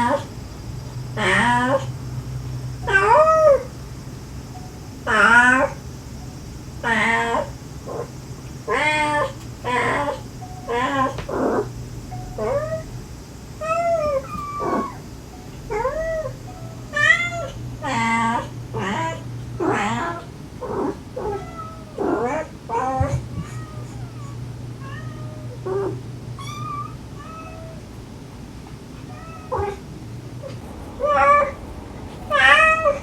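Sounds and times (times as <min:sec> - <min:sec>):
faint low hum: 0:00.0 - 0:33.0
cat and kittens meowing: 0:01.2 - 0:02.0, 0:02.8 - 0:03.7, 0:05.1 - 0:05.8, 0:06.8 - 0:13.0, 0:13.6 - 0:27.9, 0:29.0 - 0:31.6, 0:32.3 - 0:33.0.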